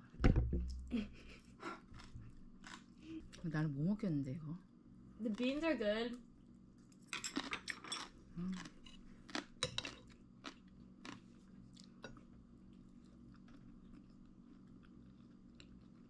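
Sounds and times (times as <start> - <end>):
person chewing food: 1.6 - 3.4, 7.3 - 16.0.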